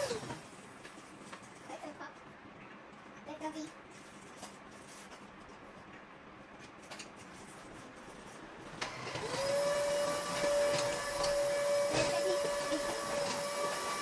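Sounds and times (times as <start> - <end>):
motor whine with rushing hiss: 8.8 - 14.0.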